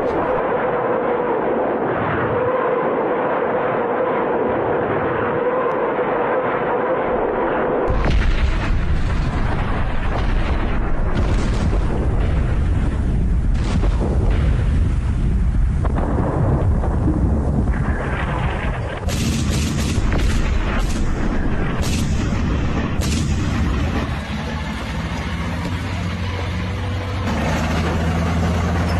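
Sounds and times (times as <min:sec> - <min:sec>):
artillery blasts rumbling: 0:07.2 - 0:28.9
gunfire cracks: 0:18.9 - 0:24.2.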